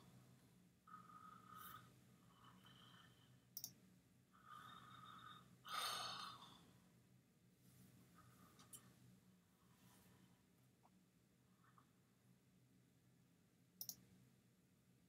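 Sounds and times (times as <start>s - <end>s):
faint steady hum: 0.0s - 15.0s
computer mouse click: 3.6s - 3.8s, 13.8s - 14.0s.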